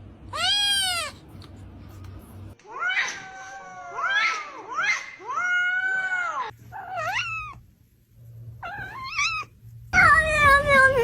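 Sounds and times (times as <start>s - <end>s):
cat meowing: 8.6s - 9.5s.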